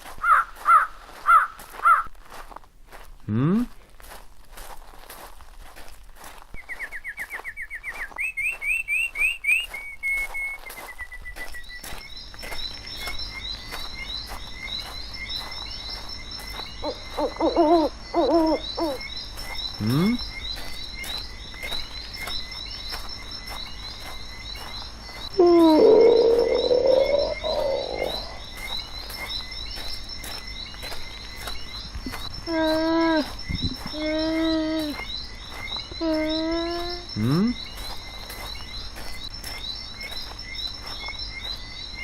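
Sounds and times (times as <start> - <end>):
high chirping chorus: 6.4 - 42.0
drawn-out animal call: 16.8 - 19.0, 25.4 - 28.4
short pitched animal calls: 25.4 - 28.4.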